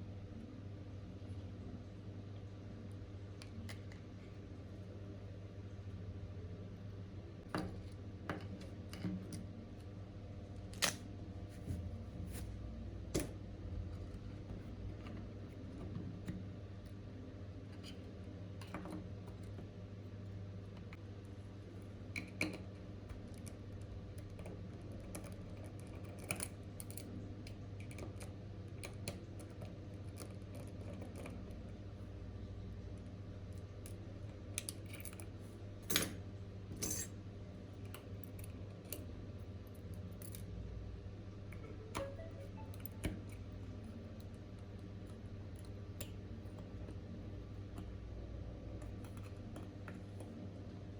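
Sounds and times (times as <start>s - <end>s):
low electrical hum: 0.0s - 50.9s
metal tools clicking and tapping: 36.8s - 37.2s.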